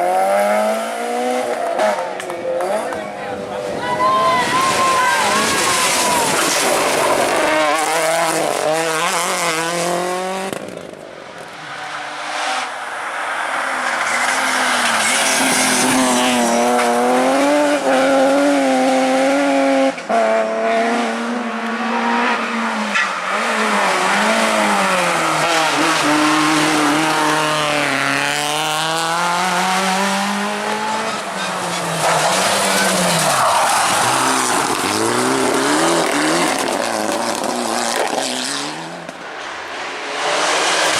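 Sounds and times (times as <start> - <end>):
rally car engines revving: 0.0 - 40.9
tyre noise: 1.6 - 12.2.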